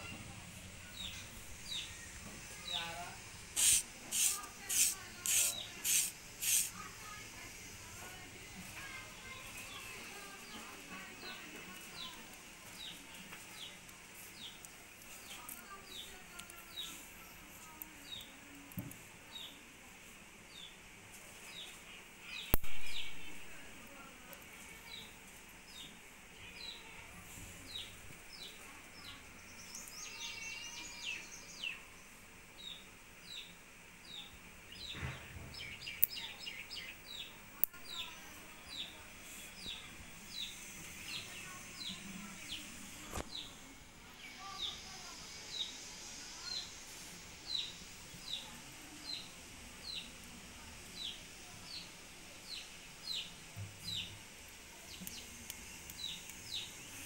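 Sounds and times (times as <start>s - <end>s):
birds chattering: 0.0s - 7.7s, 32.6s - 46.8s.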